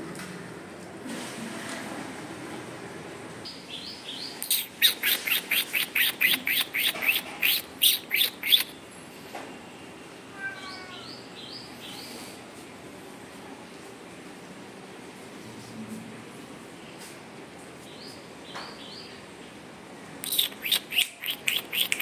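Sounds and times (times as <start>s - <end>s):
softer high bird chirps: 3.5s - 8.8s, 20.2s - 22.0s
bird sharp chirps dropping in pitch: 4.5s - 8.7s.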